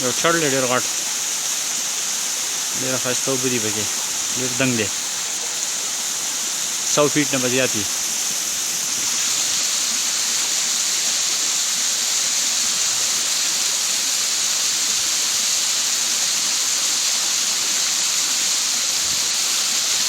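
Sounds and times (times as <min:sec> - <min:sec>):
waterfall hissing: 0:00.0 - 0:20.0.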